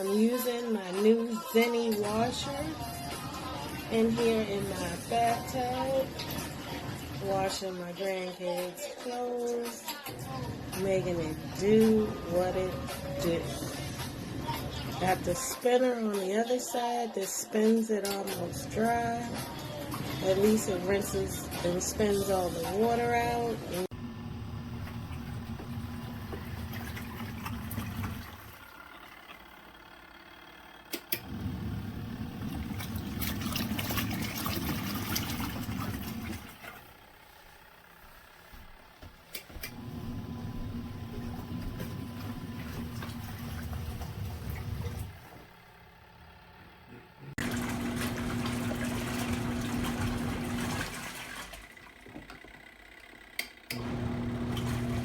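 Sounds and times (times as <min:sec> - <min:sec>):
washing machine agitating laundry: 0:02.0 - 0:07.5, 0:18.9 - 0:45.6, 0:47.4 - 0:55.0.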